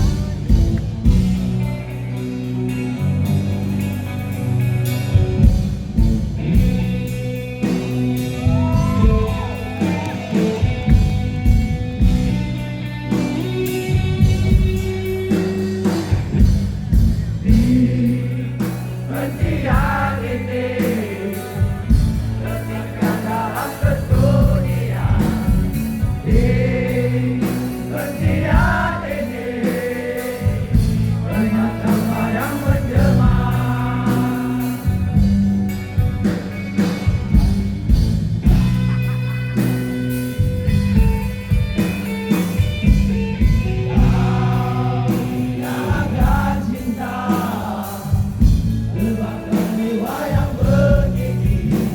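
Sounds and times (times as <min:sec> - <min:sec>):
live rock band playing: 0:00.0 - 0:51.9
person singing: 0:08.2 - 0:10.9, 0:22.4 - 0:35.0.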